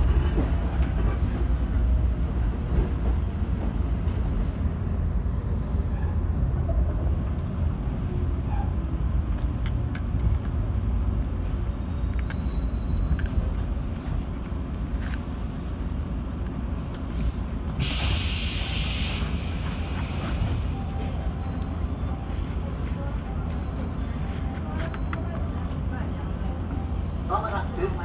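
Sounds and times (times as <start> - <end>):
electric train rumbling: 0.0 - 28.0
brake air hiss: 17.7 - 20.7.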